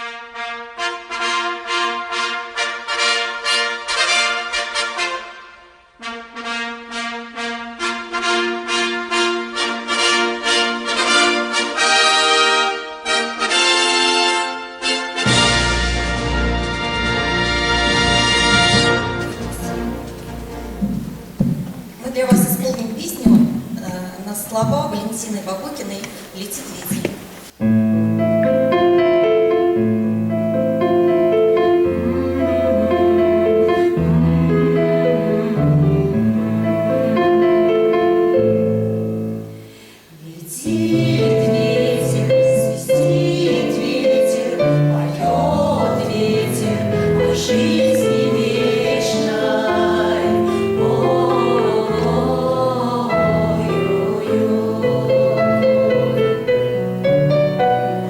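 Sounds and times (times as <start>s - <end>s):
instrumental accompaniment: 13.5s - 25.2s, 27.2s - 39.8s, 40.6s - 58.0s
choir singing: 19.2s - 21.4s, 30.8s - 38.0s, 40.1s - 57.7s.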